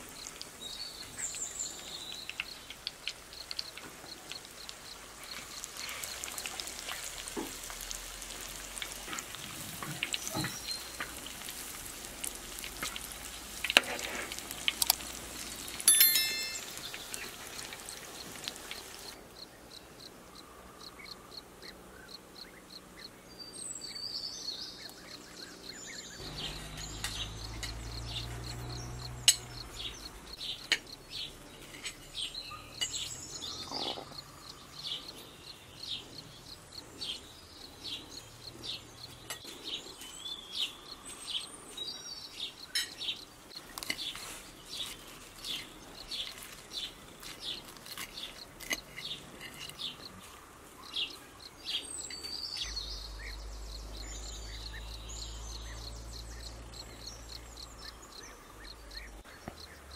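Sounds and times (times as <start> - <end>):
patties sizzling in oil: 0.0 - 19.2, 24.8 - 35.2, 35.9 - 54.8
birds chirping and singing: 22.4 - 59.9.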